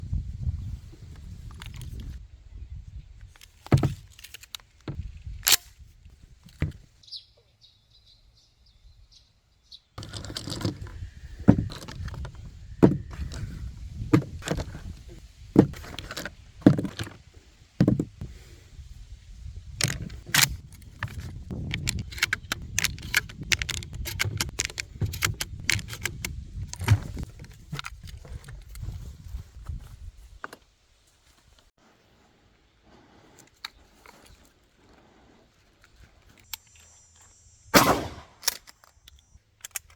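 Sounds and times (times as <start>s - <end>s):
shotgun pump action clicks: 5.4s - 5.7s, 19.8s - 27.2s, 37.8s - 39.9s.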